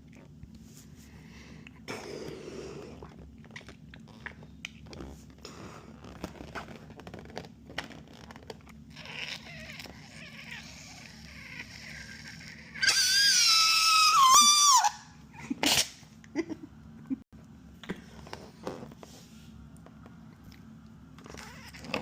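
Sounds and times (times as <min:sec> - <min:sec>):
balloon neck squealing: 0:08.9 - 0:15.1.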